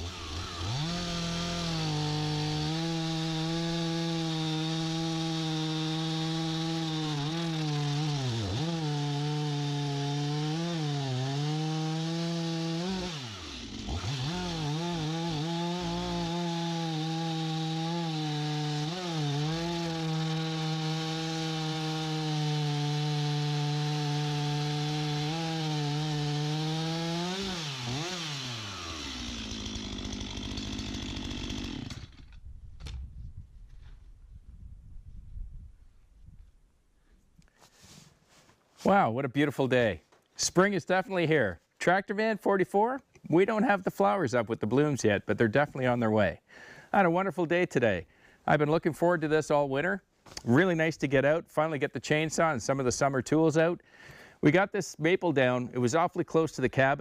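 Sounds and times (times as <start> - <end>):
chainsaw cutting logs: 0.0 - 33.2, 50.3 - 57.0.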